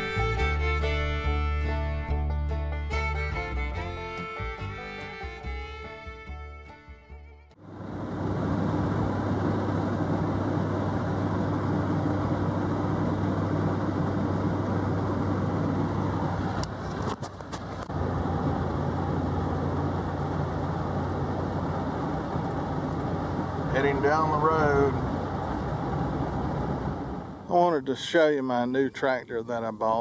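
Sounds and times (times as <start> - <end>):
vehicle engine driving: 0.0 - 27.6.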